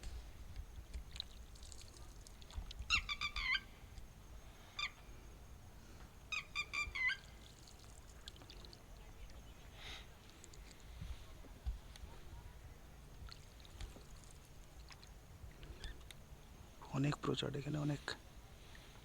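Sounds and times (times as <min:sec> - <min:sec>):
shrill bird calls: 0:02.9 - 0:03.8, 0:04.6 - 0:05.0, 0:06.3 - 0:07.5
faint low rumble: 0:08.0 - 0:19.0.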